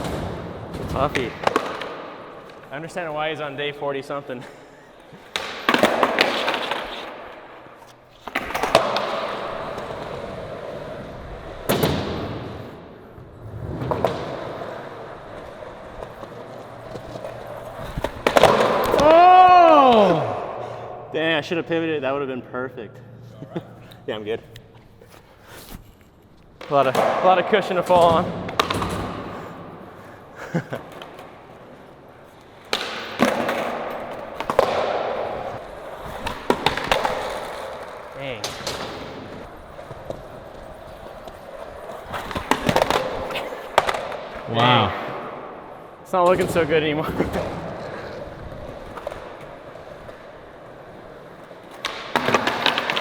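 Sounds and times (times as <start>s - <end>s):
skateboard slapping the ground: 0.0s - 2.7s, 5.0s - 20.6s, 26.4s - 45.8s, 47.0s - 53.0s
skateboard wheels rolling: 0.0s - 3.8s, 4.9s - 21.0s, 24.8s - 53.0s
skateboard tail popping: 13.4s - 20.7s, 32.4s - 44.5s, 47.9s - 53.0s.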